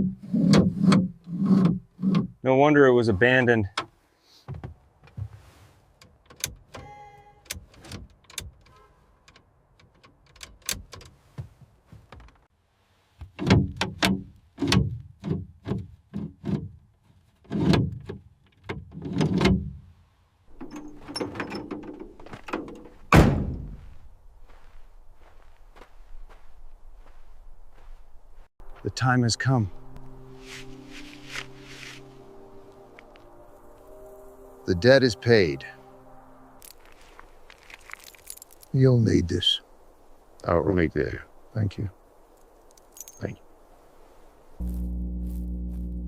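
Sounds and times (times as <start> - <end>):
metal creak: 20.5 - 23.3
loud heavy thud: 23.1 - 23.8.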